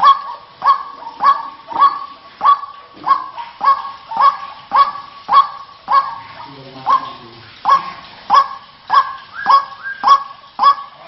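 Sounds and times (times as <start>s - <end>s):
waterhen harsh honking call: 0.0s - 11.0s.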